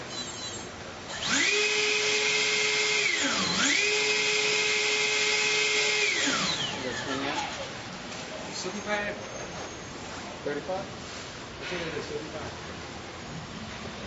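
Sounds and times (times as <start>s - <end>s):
small electric motor whining: 0.2s - 7.8s.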